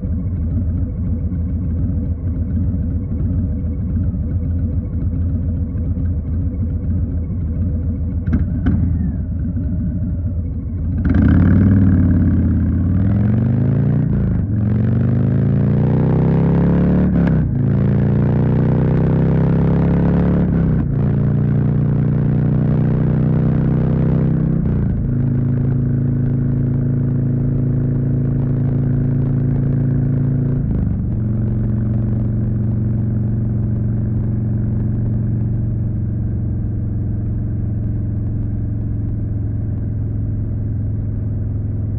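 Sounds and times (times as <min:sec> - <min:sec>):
motorcycle engine pulling away: 0:10.8 - 0:27.2.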